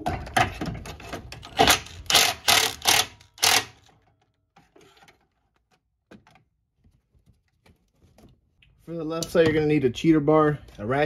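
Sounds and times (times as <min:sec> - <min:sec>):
ratchet clicking: 0:01.5 - 0:03.9.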